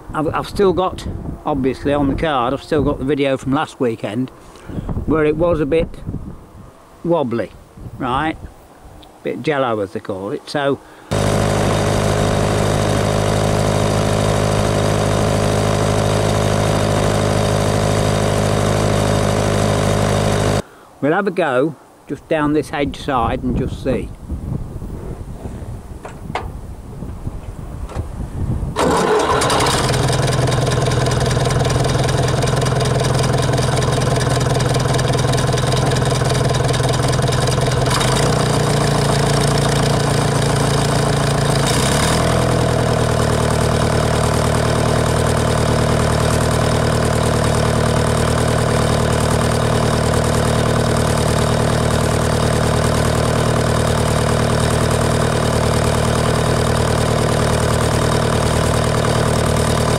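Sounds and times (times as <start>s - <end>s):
diesel tractor engine running: 11.1s - 20.6s, 28.8s - 59.9s.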